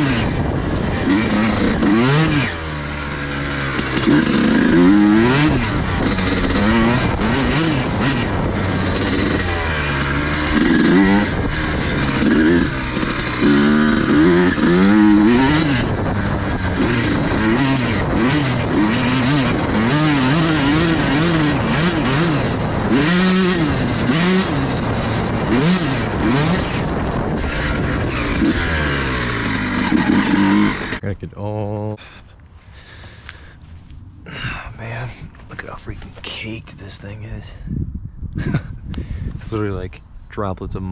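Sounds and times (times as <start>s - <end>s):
motorbike engine revving: 0.0s - 31.2s.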